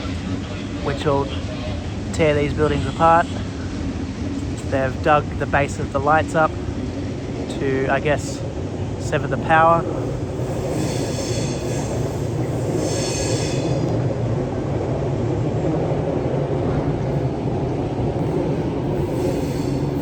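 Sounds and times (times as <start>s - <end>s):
train rumbling: 0.0s - 20.0s
train wheels squealing: 10.2s - 14.0s, 18.9s - 20.0s.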